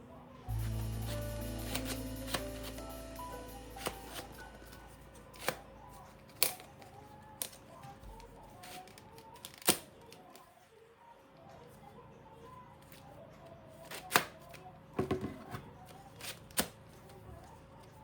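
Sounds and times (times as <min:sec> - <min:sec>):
household objects knocking: 0:15.0 - 0:15.5.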